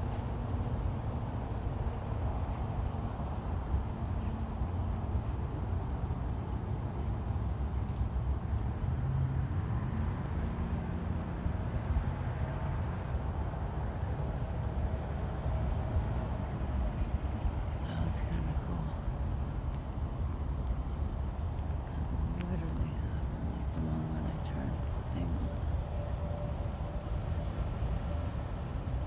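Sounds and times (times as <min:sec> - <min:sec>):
steady low rumble: 0:15.9 - 0:29.0.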